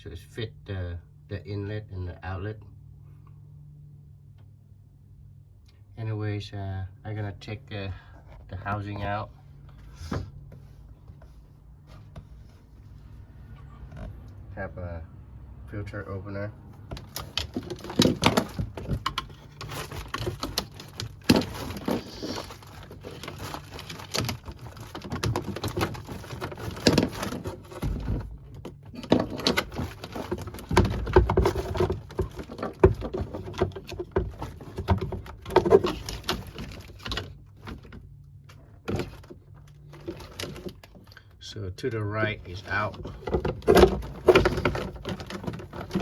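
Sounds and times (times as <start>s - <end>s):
plastic clicks knocks and scrapes: 16.8s - 41.2s, 42.5s - 46.0s.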